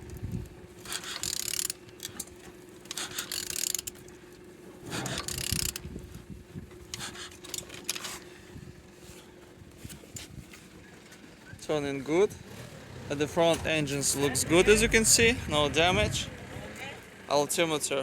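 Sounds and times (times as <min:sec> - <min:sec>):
ratchet wrench ratcheting: 0:00.8 - 0:04.1, 0:05.1 - 0:05.9.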